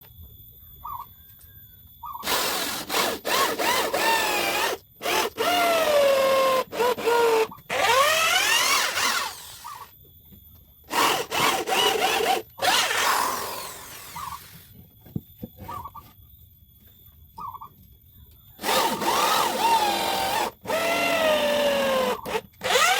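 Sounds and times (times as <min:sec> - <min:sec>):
power drill boring into wood: 0:02.2 - 0:09.9, 0:10.9 - 0:14.7, 0:18.6 - 0:22.9.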